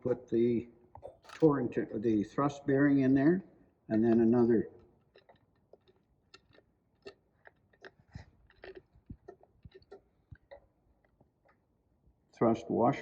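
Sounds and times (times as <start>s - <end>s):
metal parts clicking and clinking: 1.2s - 1.6s.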